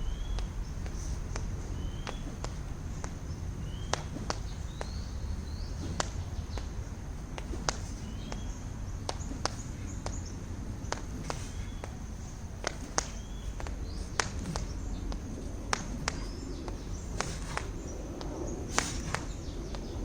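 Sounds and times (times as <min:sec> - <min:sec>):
bird chirps: 0:00.0 - 0:02.6, 0:03.2 - 0:07.0, 0:12.8 - 0:15.2
low rumble: 0:00.0 - 0:20.0
rope slapping the ground: 0:00.3 - 0:20.0.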